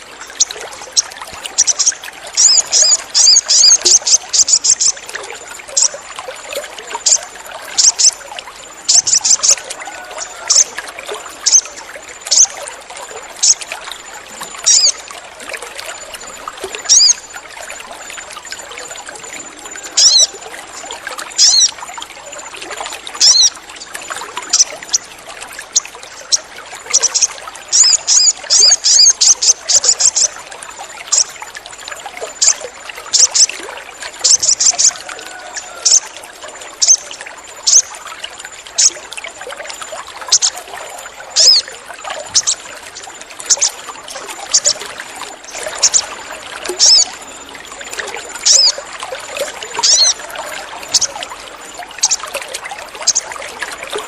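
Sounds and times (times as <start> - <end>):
water trickling: 0.0 - 54.0
bird chirping: 0.3 - 5.0, 7.8 - 8.2, 14.6 - 15.0, 16.8 - 17.2, 19.9 - 20.3, 21.4 - 21.8, 23.2 - 23.6, 25.7 - 30.4, 36.8 - 37.9, 41.4 - 41.6, 46.8 - 47.4, 48.4 - 48.8.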